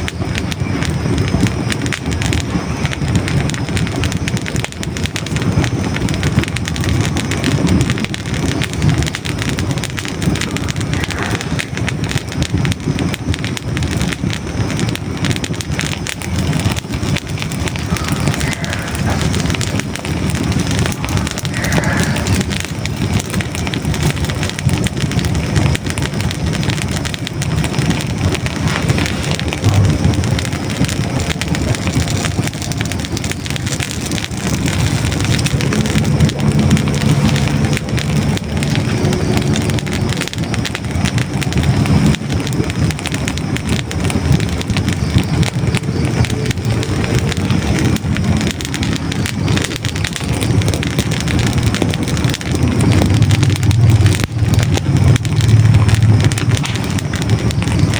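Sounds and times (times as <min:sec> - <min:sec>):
logs crackling and popping: 0:00.0 - 0:57.9
low rumble of flames: 0:00.0 - 0:57.9.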